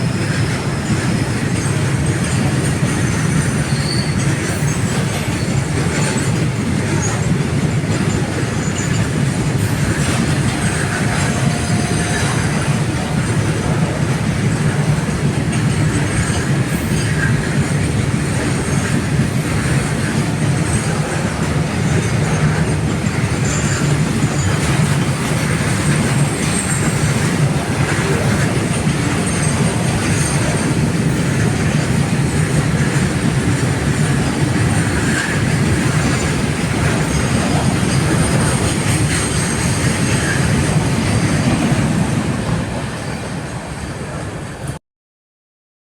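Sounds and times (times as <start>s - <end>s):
high wheel squeal: 0.0s - 6.3s, 6.9s - 14.0s, 15.7s - 17.7s, 20.6s - 30.9s, 34.7s - 42.1s
train wheels rumbling on track: 0.0s - 44.8s.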